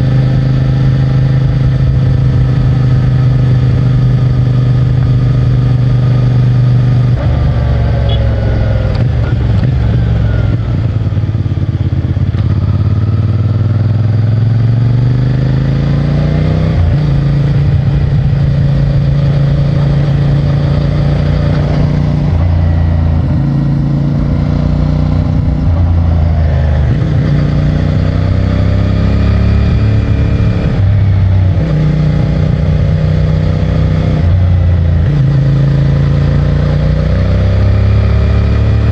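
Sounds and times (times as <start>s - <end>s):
motorcycle engine revving while riding: 0.0s - 38.9s.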